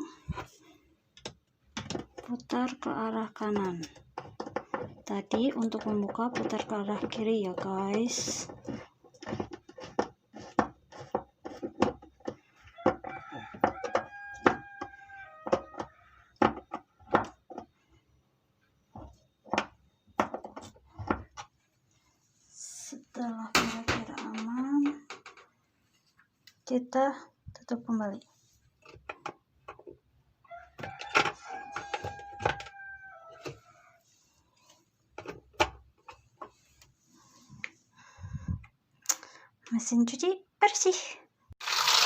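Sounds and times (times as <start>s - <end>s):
plastic parts clicking and knocking: 1.1s - 17.8s, 18.9s - 21.5s, 23.5s - 25.6s, 28.8s - 32.8s, 35.1s - 36.6s.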